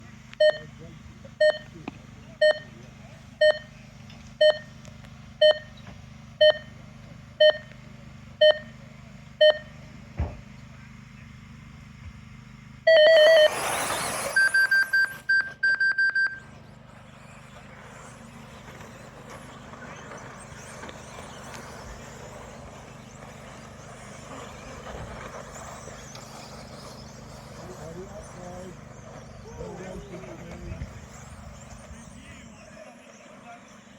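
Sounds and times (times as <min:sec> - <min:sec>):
electronic timer beeps: 0:00.4 - 0:00.7, 0:01.4 - 0:01.7, 0:02.4 - 0:02.7, 0:03.4 - 0:03.7, 0:04.4 - 0:04.8, 0:05.4 - 0:05.8, 0:06.4 - 0:06.7, 0:07.4 - 0:07.7, 0:08.4 - 0:08.8, 0:09.4 - 0:09.8, 0:12.9 - 0:16.5
electric motor whine: 0:12.8 - 0:15.6, 0:16.4 - 0:33.9.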